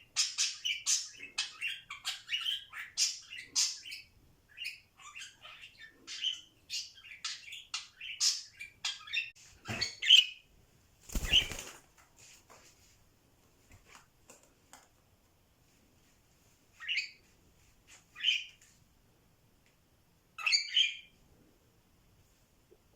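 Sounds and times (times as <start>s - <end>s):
budgerigar chirping and chattering: 0.2s - 10.4s
wing flaps: 11.0s - 11.9s.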